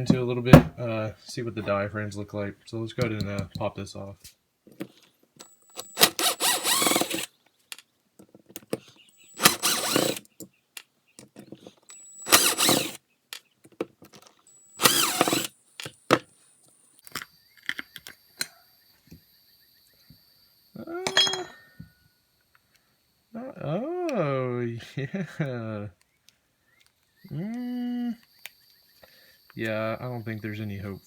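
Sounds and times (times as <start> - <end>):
cordless power driver whirring: 5.7 - 7.3, 9.3 - 10.3, 11.9 - 13.0, 14.7 - 15.5
metal clink: 21.1 - 21.8.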